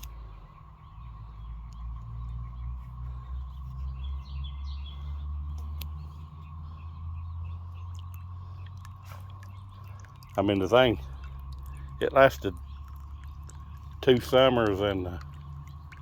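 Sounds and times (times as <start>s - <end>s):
constant high hum: 0.0s - 16.0s
small birds chirping: 0.0s - 16.0s.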